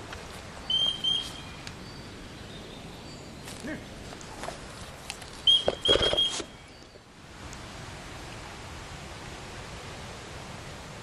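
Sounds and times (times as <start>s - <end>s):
bird chirping: 0.6s - 4.0s, 5.4s - 7.0s.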